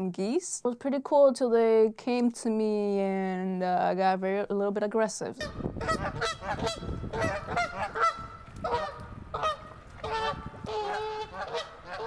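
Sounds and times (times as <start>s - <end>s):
geese honking: 5.4s - 12.0s.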